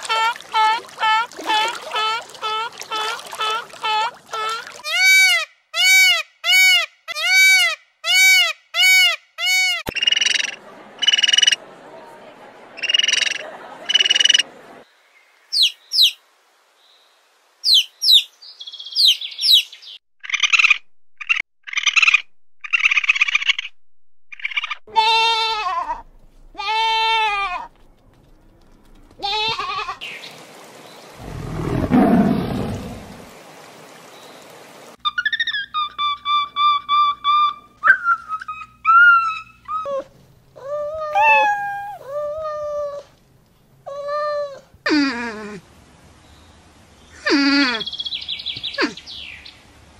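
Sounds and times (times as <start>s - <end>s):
dolphin pulses buzzing: 31.2s - 33.3s
peacock calling: 40.6s - 42.2s.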